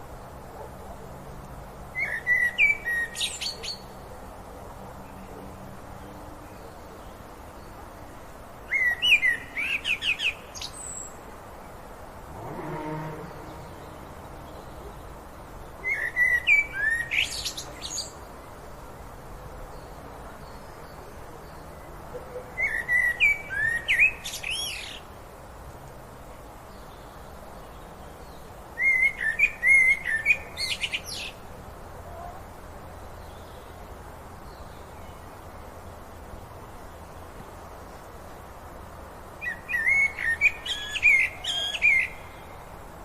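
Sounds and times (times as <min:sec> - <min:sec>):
low background hiss: 0:00.0 - 0:43.0
songbird chirping and whistling: 0:28.8 - 0:31.3, 0:39.4 - 0:42.3.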